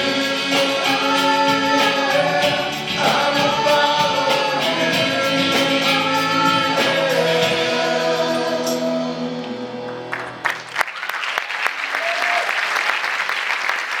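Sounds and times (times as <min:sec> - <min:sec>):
audience applause: 0:10.1 - 0:14.0
person whooping: 0:11.9 - 0:12.6.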